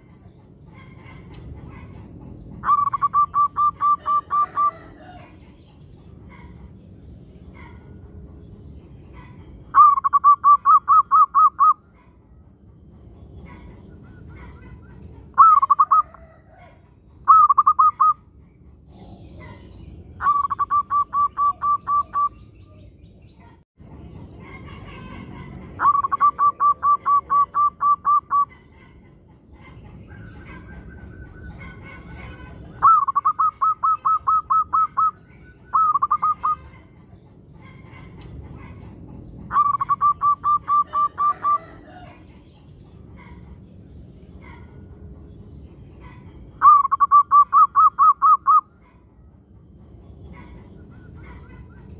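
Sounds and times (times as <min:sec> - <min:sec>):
dove cooing: 0:02.6 - 0:05.4, 0:14.1 - 0:18.2, 0:20.2 - 0:22.3, 0:24.6 - 0:28.5, 0:30.2 - 0:36.8
steady low rumble: 0:04.8 - 0:10.1.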